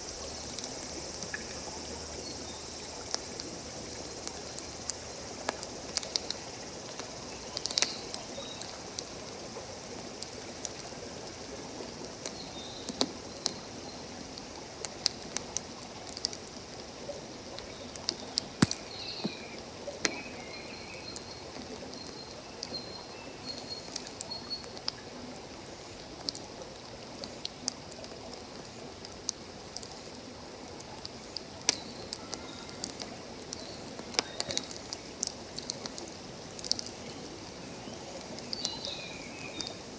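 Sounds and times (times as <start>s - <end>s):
running water: 0.0s - 39.9s
campfire crackling and popping: 2.8s - 9.1s, 14.4s - 20.5s, 27.2s - 37.6s.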